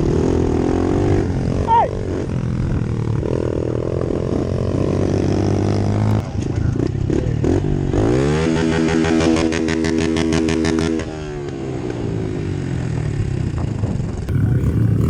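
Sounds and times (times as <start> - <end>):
pit bike engine revving: 14.3 - 15.0.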